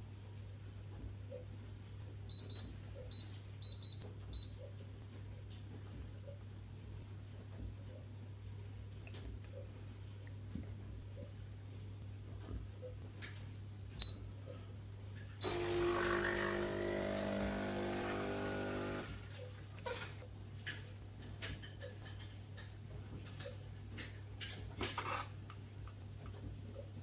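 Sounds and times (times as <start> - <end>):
small motor running: 15.4 - 19.2.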